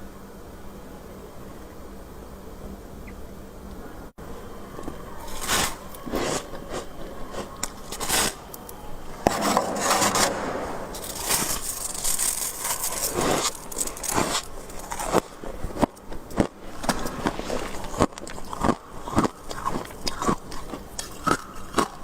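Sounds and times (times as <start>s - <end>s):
frost scraping rasps: 4.8s - 22.0s.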